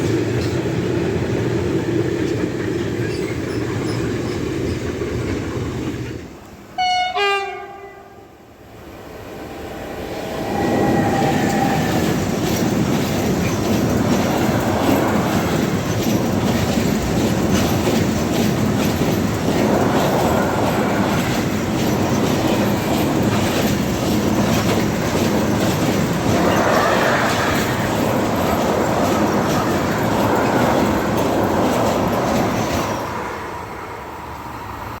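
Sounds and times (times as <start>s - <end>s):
train horn blast: 6.8s - 8.4s
train wheels clattering: 10.5s - 33.4s.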